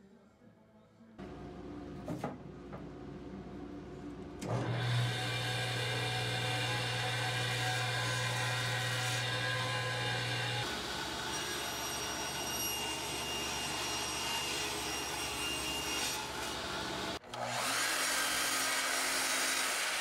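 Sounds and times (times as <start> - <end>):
woodworking machine motor humming: 4.4 - 11.6, 16.2 - 20.0.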